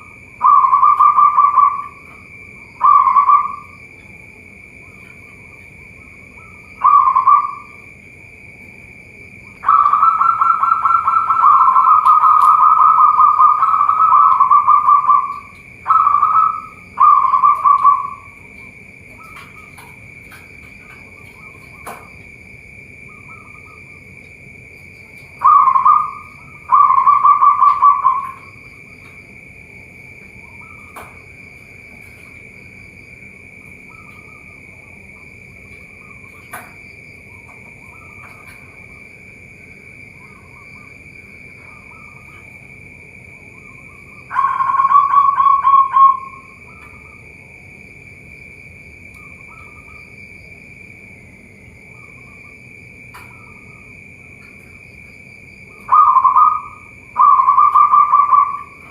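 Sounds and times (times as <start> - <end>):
doves cooing: 0.0 - 47.5, 55.6 - 58.9
steady high whine: 0.0 - 58.9.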